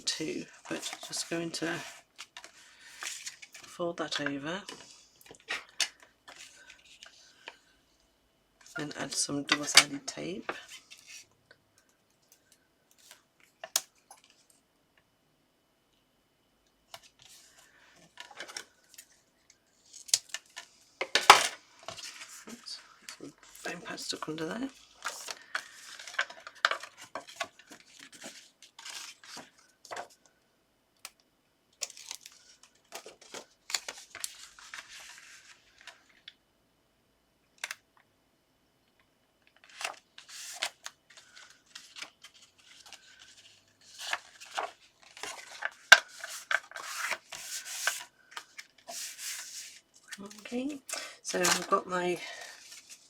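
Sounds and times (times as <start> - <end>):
paper rustling and scraping: 0.0 - 7.6, 19.8 - 30.1, 31.8 - 36.2, 39.6 - 50.6, 51.3 - 53.0.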